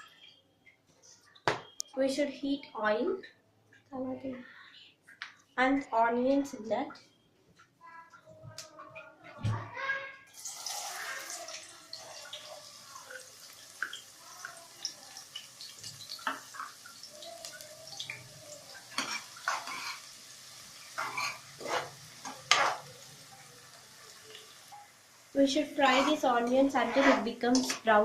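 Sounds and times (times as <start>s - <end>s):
onions sizzling in oil: 10.3s - 28.0s
spoon clinking and scraping pan: 18.8s - 20.2s, 20.8s - 23.0s, 25.8s - 27.9s.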